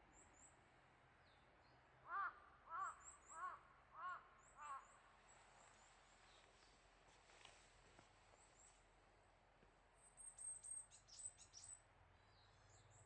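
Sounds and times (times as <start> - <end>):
faint outdoor hiss: 0.0 - 13.0
crow cawing: 2.0 - 5.0.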